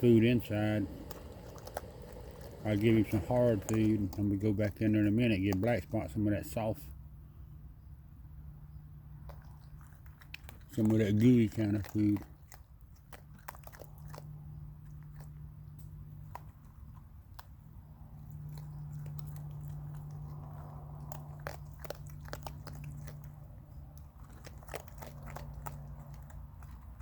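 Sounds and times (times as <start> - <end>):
animals crunching dry food: 0.0 - 6.9, 9.1 - 27.0
steady low hum: 0.0 - 9.7.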